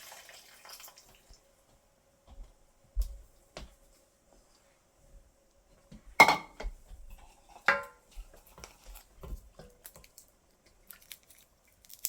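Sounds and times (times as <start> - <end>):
cookware clanking: 6.2 - 8.1.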